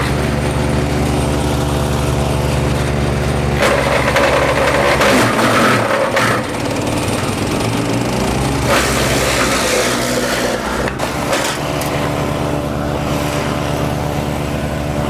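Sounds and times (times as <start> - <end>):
wood chipper engine running: 0.0 - 15.0.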